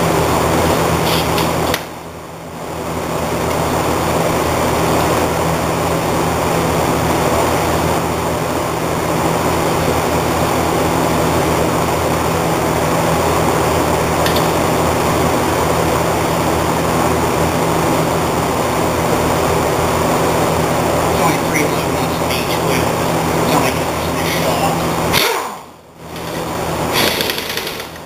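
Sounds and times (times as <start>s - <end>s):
mechanical drone with low hum: 0.0s - 28.0s.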